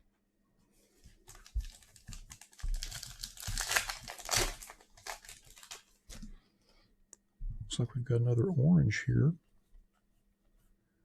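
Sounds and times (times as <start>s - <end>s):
wrapper tearing and crinkling: 1.3s - 6.2s.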